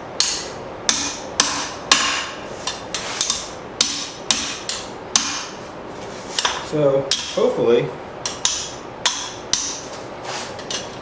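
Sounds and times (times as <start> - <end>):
hammer striking steel on anvil: 0.2 - 5.6, 6.4 - 7.5, 8.3 - 9.8.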